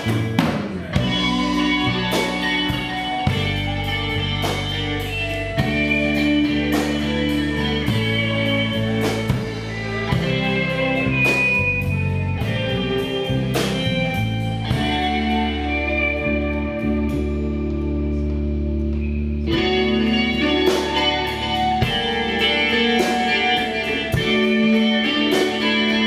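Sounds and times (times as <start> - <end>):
bass guitar: 0.0 - 26.0
electric guitars picking melodies: 0.0 - 26.0
steady drum kit beat: 0.0 - 26.0.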